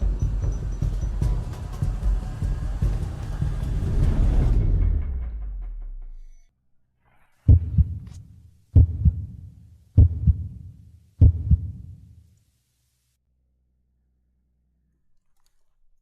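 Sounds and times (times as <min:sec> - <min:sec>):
heartbeat thumps: 0:00.0 - 0:05.6, 0:07.5 - 0:08.2, 0:08.8 - 0:12.0
music: 0:00.0 - 0:06.5.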